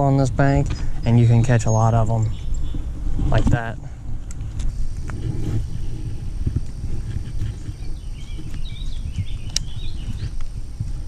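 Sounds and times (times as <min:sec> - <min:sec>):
low microphone rumble: 0:00.0 - 0:11.0
songbird warbling: 0:00.7 - 0:03.1, 0:07.0 - 0:10.4.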